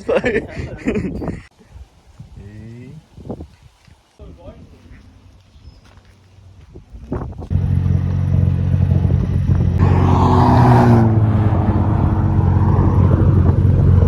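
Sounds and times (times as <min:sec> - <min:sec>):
car engine at high revs: 0:07.5 - 0:14.0
rushing burst: 0:09.8 - 0:14.0.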